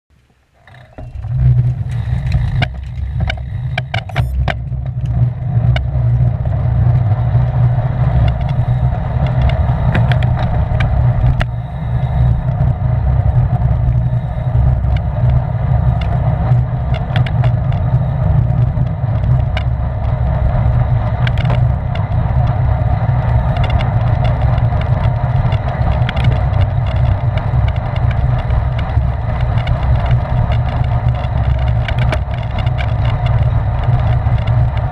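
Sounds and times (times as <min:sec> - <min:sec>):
wind rumbling on microphone: 0:00.4 - 0:34.9
sharp clicks: 0:00.6 - 0:05.9.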